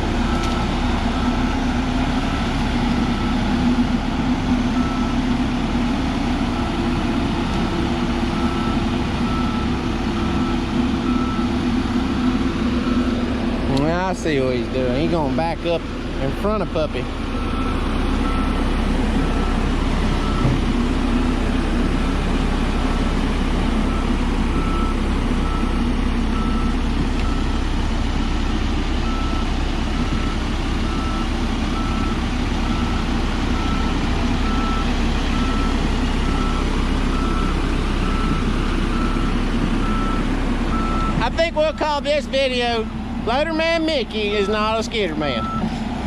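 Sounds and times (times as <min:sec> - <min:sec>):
heavy vehicle engine running: 0:00.0 - 0:46.0
back-up alarm beeping: 0:17.4 - 0:20.6, 0:23.9 - 0:45.7.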